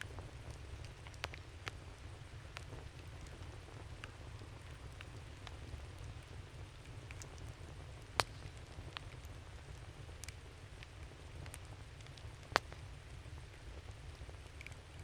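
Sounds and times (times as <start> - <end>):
campfire crackling: 0.0 - 15.0
low steady fire rumble: 0.0 - 15.0
sharp pops of burning wood: 7.0 - 9.9.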